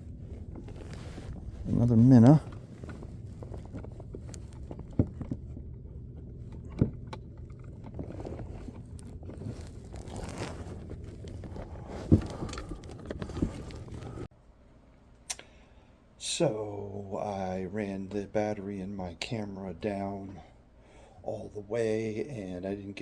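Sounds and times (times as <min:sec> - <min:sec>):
gear scraping: 0:00.0 - 0:14.3
steady low rumble: 0:00.0 - 0:14.3.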